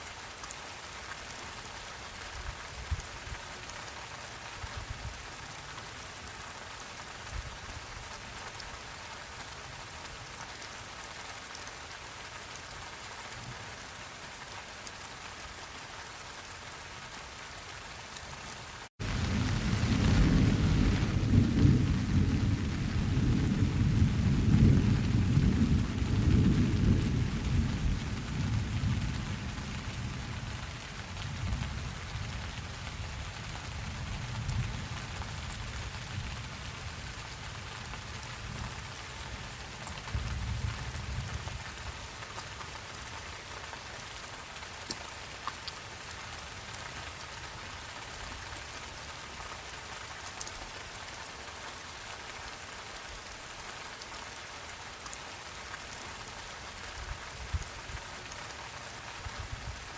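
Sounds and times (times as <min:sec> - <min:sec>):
steady rain falling: 0:00.0 - 0:59.9
low rumble of thunder: 0:19.0 - 0:42.0.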